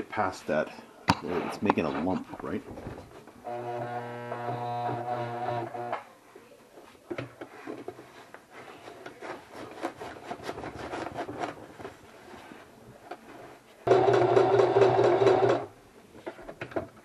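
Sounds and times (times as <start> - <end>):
fabric rubbing and scraping: 7.5 - 13.9.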